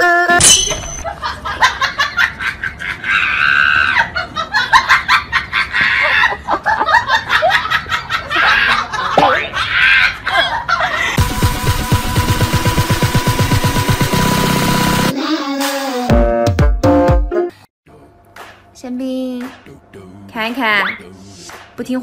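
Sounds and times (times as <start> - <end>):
people laughing: 1.0 - 11.2.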